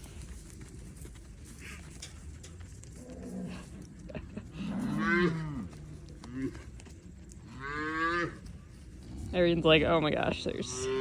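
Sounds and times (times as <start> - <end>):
calves mooing: 7.5 - 8.4.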